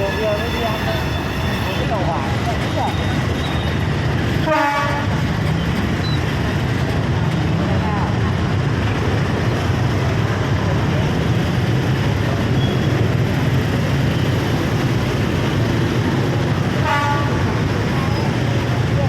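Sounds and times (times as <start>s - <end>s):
train horn toot: 0.0s - 2.0s, 4.4s - 5.2s, 16.8s - 17.5s
train rumbling: 0.0s - 19.0s.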